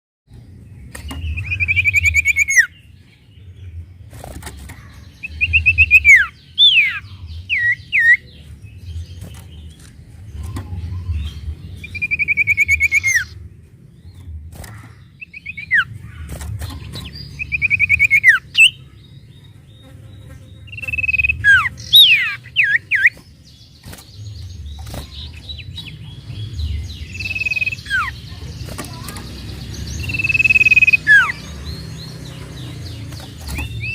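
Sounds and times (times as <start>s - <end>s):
low steady background rumble: 0.3s - 33.9s
bird calling rapid trills: 1.4s - 2.7s, 11.8s - 13.4s, 20.7s - 23.2s, 27.1s - 33.9s.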